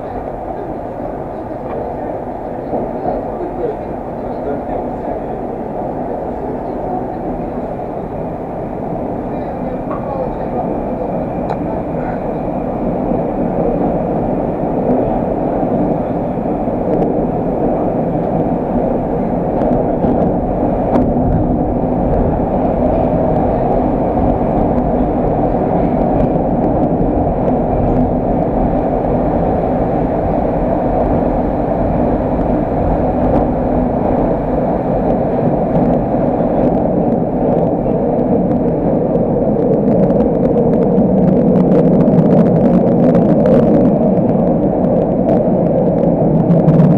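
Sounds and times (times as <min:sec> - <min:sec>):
metro train rumbling: 0:00.0 - 0:46.9.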